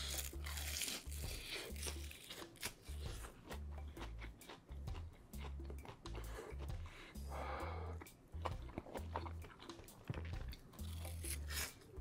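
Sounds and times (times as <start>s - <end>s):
crunchy chewing of fried food: 0.0s - 12.0s.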